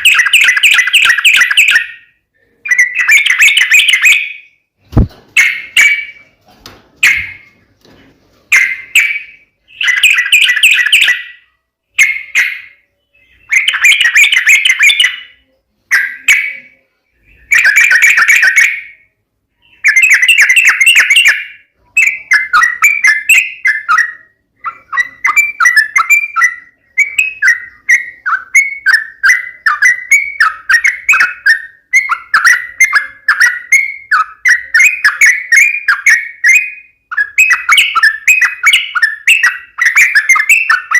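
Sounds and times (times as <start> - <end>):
bird chattering song: 0.0 - 6.4, 7.0 - 7.7, 8.5 - 40.9.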